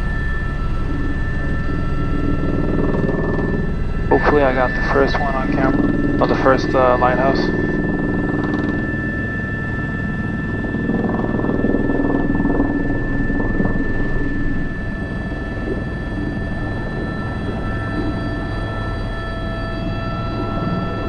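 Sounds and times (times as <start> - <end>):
helicopter rotor and turbine whine: 0.0 - 21.0.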